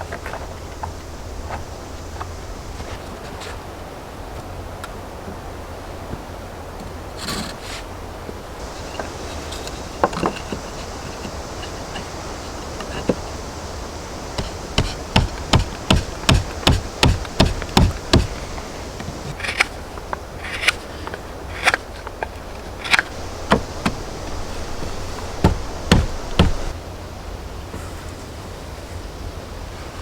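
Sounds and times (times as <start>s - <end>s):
hammer blows on wood: 8.6s - 19.3s, 23.1s - 26.8s.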